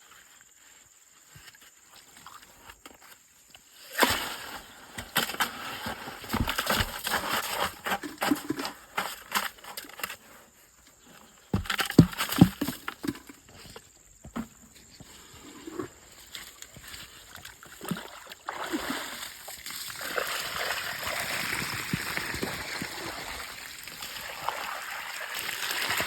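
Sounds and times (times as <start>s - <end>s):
sand and gravel scraping: 0.0s - 10.4s.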